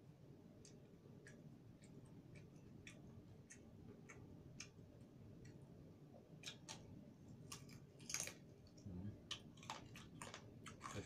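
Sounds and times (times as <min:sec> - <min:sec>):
crispy pork being chewed: 0:00.6 - 0:05.6, 0:06.4 - 0:11.0
crackling skin crunching: 0:06.4 - 0:11.0.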